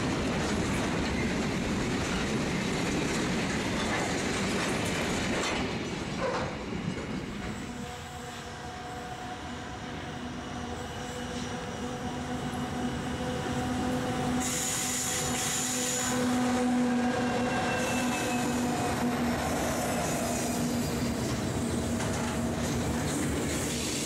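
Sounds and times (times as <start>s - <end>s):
high wheel squeal: 14.4s - 21.0s.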